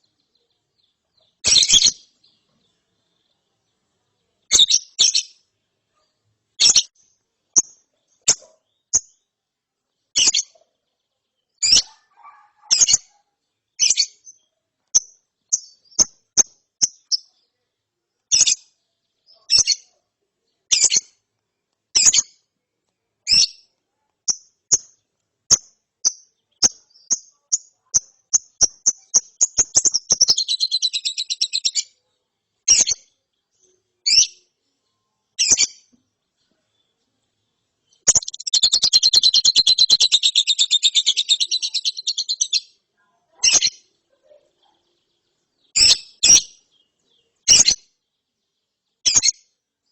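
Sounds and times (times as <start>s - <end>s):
young bird chirping and trilling: 0.0s - 3.4s, 4.4s - 5.5s, 6.6s - 9.2s, 10.1s - 10.7s, 11.5s - 13.2s, 13.8s - 17.4s, 18.2s - 20.0s, 20.7s - 21.2s, 21.9s - 22.4s, 23.3s - 23.7s, 24.3s - 32.0s, 32.7s - 33.2s, 34.0s - 34.5s, 35.4s - 36.0s, 37.8s - 44.0s, 45.5s - 47.9s, 49.0s - 49.5s.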